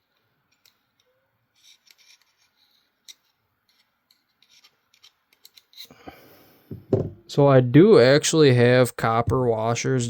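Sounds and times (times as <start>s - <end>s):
small tools clicking and scraping: 0.0s - 6.0s.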